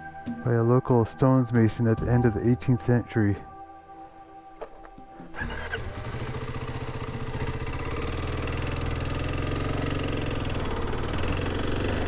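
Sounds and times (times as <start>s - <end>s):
motorcycle engine idling: 5.3s - 12.0s.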